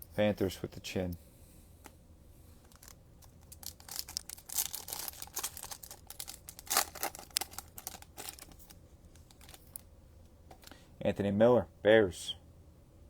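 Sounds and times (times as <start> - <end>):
cards crinkling and rustling: 2.6 - 9.8.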